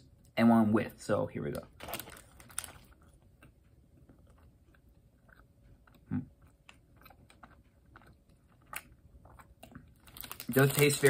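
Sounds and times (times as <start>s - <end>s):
quiet chewing: 2.6s - 10.3s.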